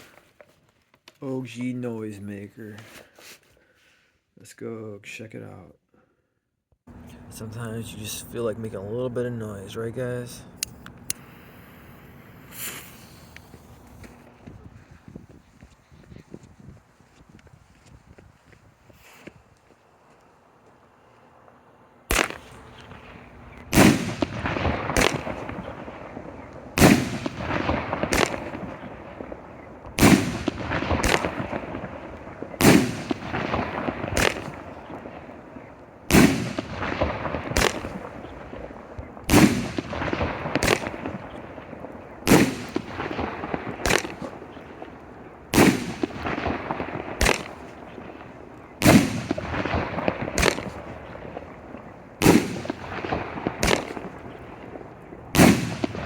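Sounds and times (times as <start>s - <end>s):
firework bangs: 10.0s - 16.5s, 22.0s - 56.0s.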